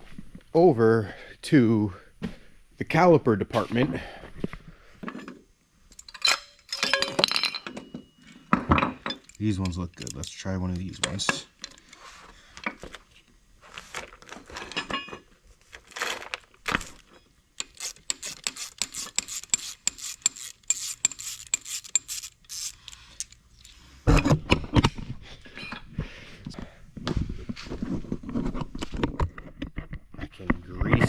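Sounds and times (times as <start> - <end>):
metal parts clinking and rattling: 5.9 - 11.9, 14.6 - 15.2, 17.6 - 23.8
fast small clicks: 17.6 - 23.7.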